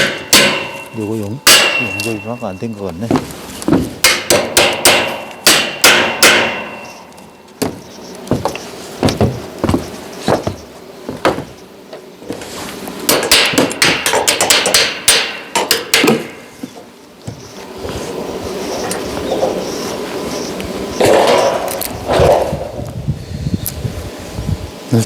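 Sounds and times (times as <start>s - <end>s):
hammer striking steel: 0.0s - 2.6s, 4.0s - 7.0s, 13.1s - 16.5s.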